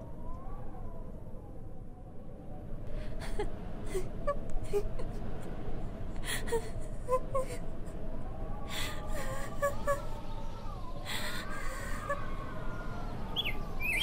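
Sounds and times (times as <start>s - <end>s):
girl crying: 3.1s - 5.2s, 6.2s - 7.7s, 8.6s - 13.0s.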